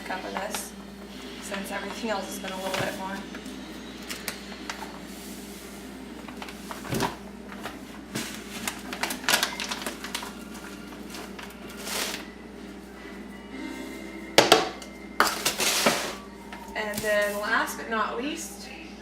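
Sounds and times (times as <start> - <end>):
plastic bag rustling: 4.1 - 13.0, 15.2 - 17.5.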